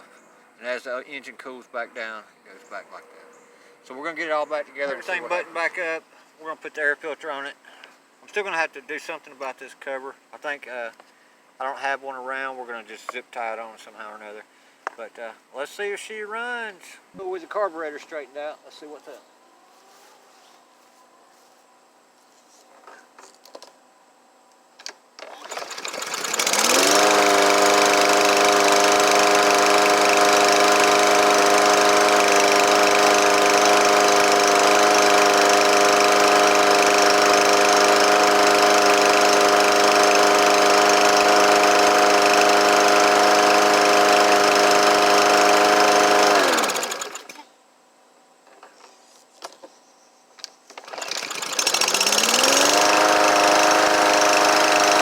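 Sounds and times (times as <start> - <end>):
lawn mower pull start: 24.8 - 47.4, 50.7 - 55.0
lawn mower engine running: 25.2 - 47.4, 50.7 - 55.0.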